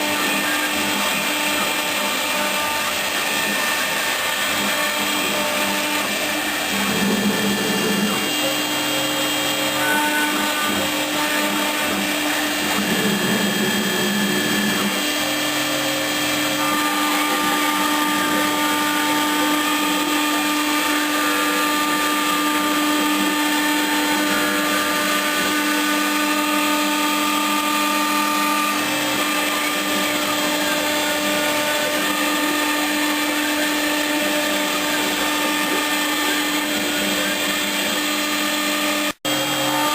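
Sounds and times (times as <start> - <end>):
axis motor tones: 0.0 - 39.9
router motor whine: 0.0 - 39.9.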